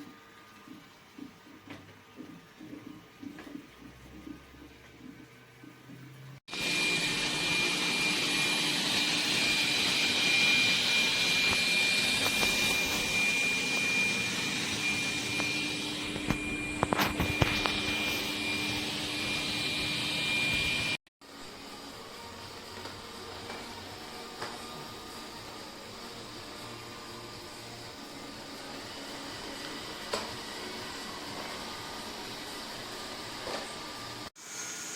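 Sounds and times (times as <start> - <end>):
robot vacuum whirring: 6.5 - 21.0.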